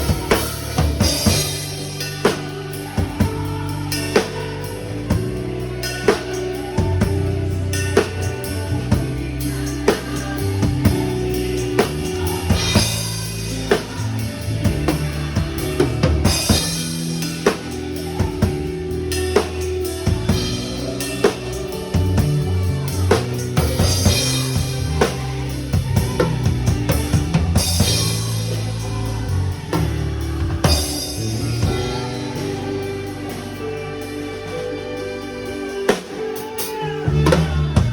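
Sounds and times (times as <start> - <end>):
drum kit playing: 0.0 - 37.9
worship music track: 0.0 - 37.9.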